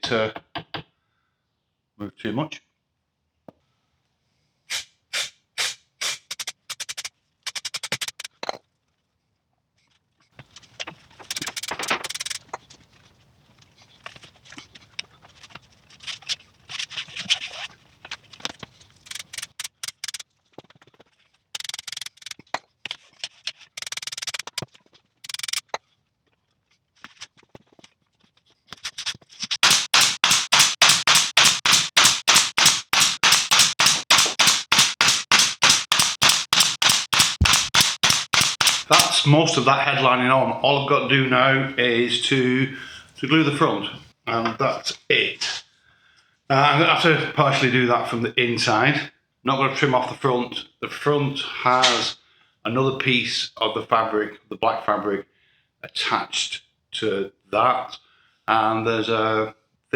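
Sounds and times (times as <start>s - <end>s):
fast sharp taps: 5.6s - 8.3s, 11.2s - 12.4s, 19.1s - 20.2s, 29.6s - 39.3s
scattered clicks: 6.0s - 8.3s, 11.2s - 12.4s, 19.1s - 20.2s, 21.6s - 22.4s, 23.8s - 24.6s, 25.2s - 25.6s, 29.6s - 39.3s.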